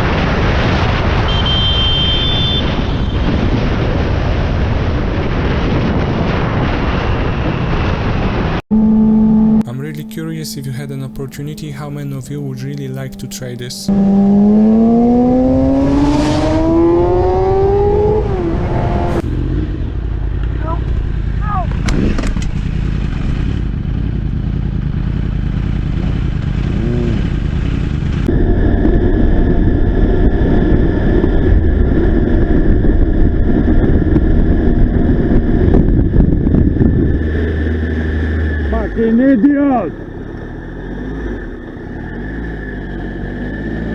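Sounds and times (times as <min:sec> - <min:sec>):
wind noise on microphone: 0:00.0 - 0:08.6, 0:27.9 - 0:39.0
vehicle engine accelerating: 0:00.0 - 0:43.9.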